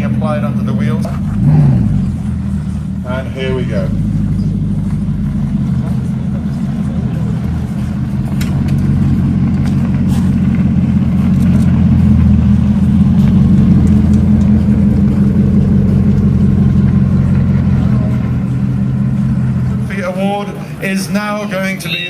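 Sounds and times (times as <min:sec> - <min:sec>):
car engine deep drone: 0:00.0 - 0:22.0.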